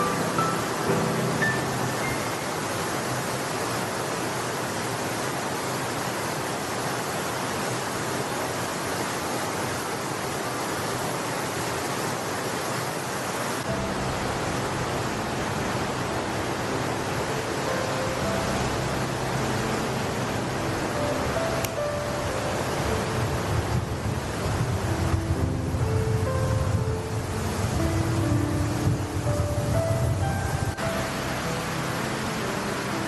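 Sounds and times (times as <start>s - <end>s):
soft background music: 0.0s - 4.0s, 13.6s - 33.0s
mountain stream rushing: 0.0s - 33.0s.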